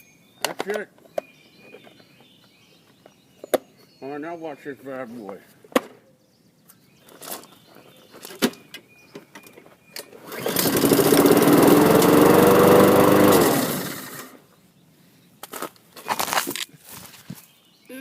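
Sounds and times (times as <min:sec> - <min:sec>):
lawn mower engine starting: 0:10.0 - 0:14.4.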